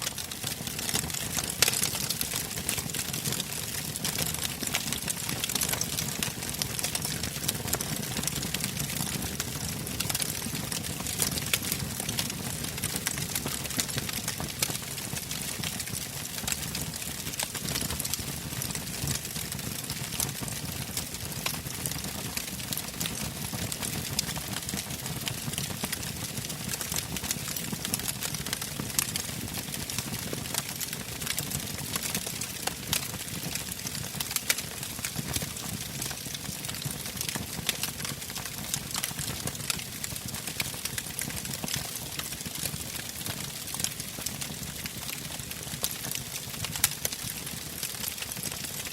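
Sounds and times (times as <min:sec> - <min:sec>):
wood fire crackling and popping: 0:00.0 - 0:48.9.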